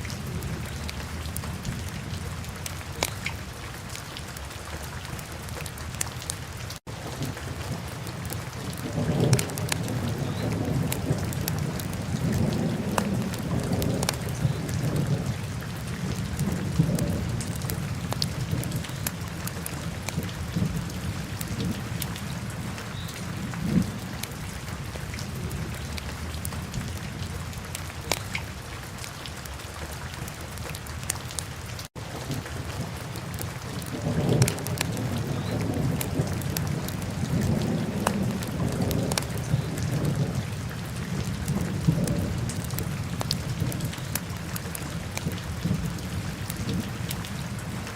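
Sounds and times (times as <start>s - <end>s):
wood fire crackling and popping: 3.0s - 3.4s, 36.0s - 39.3s.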